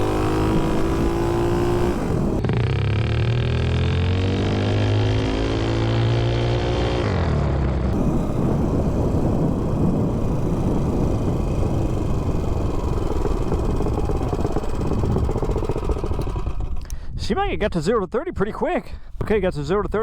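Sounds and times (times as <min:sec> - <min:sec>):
loud steady rushing noise: 0:00.0 - 0:02.4, 0:08.0 - 0:16.6
mini bike engine revving: 0:00.0 - 0:16.9.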